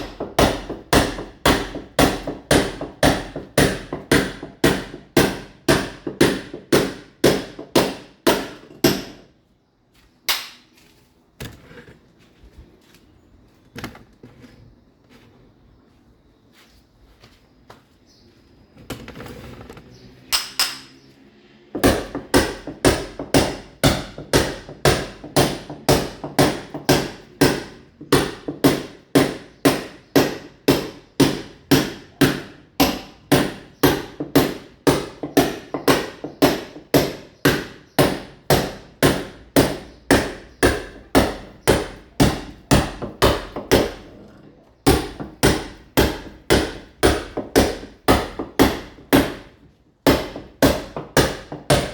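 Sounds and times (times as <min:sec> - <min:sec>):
hammer chipping masonry wall: 0:00.0 - 0:09.4, 0:21.7 - 0:44.2, 0:44.8 - 0:51.9
shuffling: 0:09.8 - 0:19.9.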